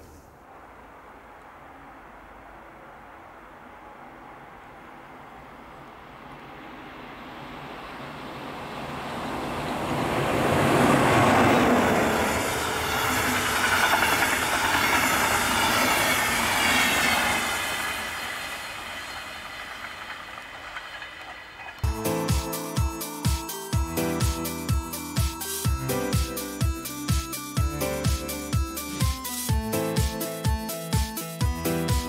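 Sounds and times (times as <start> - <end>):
train passing at speed: 0.0 - 32.0
wheel clatter over rails: 9.9 - 21.8.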